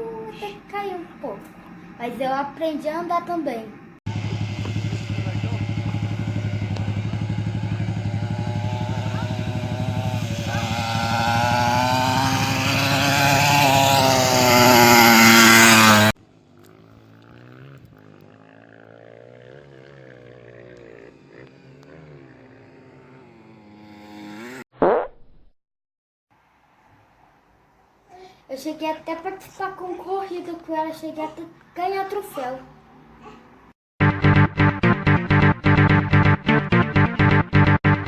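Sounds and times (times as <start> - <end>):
faint wavering engine: 3.9 - 24.6
mini motocross bike engine revving: 4.1 - 24.6.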